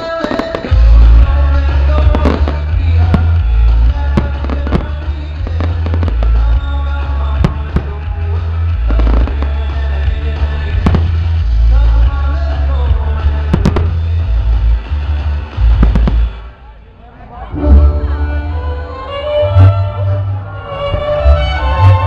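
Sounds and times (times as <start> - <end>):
loud music with heavy bass: 0.0 - 16.5, 17.6 - 22.0
fireworks bangs: 0.0 - 16.7.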